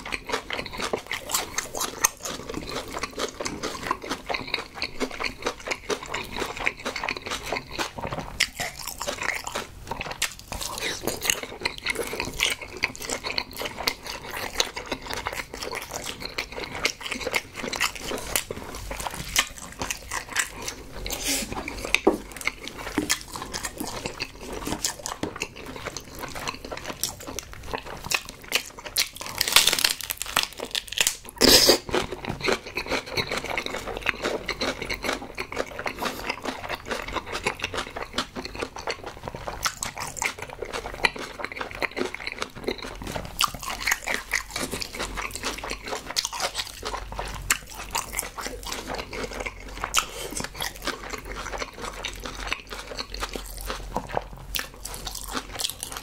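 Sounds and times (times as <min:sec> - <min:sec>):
wet chewing and smacking: 0:00.0 - 0:56.0
crunching bites: 0:21.9 - 0:56.0.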